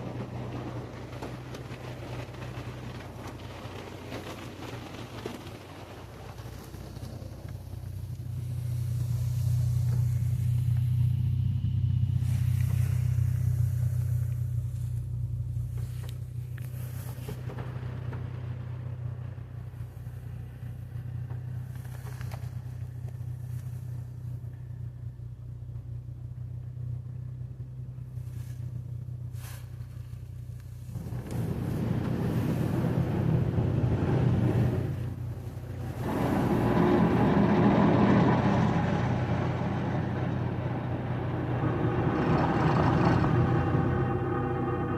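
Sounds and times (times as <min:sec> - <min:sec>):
car wash machine hum: 0:00.0 - 0:44.9
rushing hiss: 0:06.0 - 0:11.3, 0:12.0 - 0:17.4.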